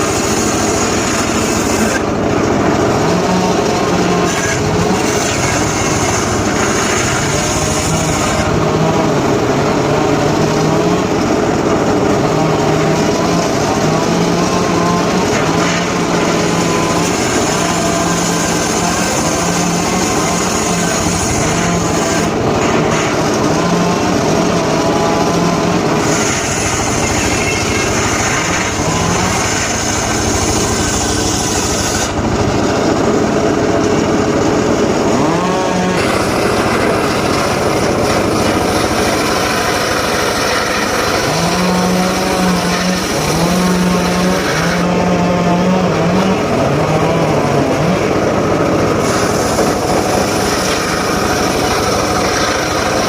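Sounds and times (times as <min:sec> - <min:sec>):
power saw cutting wood: 0:00.0 - 0:53.0.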